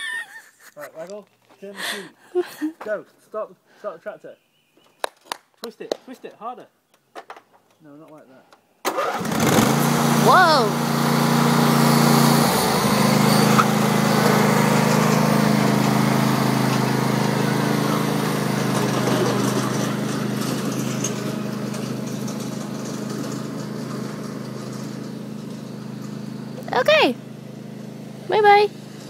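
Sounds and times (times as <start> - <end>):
tractor engine running: 8.9 - 29.0.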